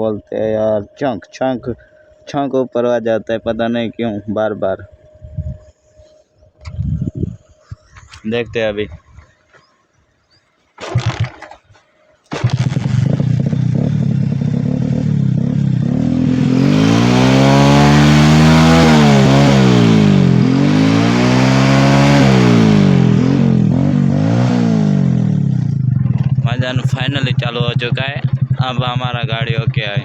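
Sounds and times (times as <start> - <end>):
motorcycle engine revving: 10.8 - 11.7, 12.3 - 30.0.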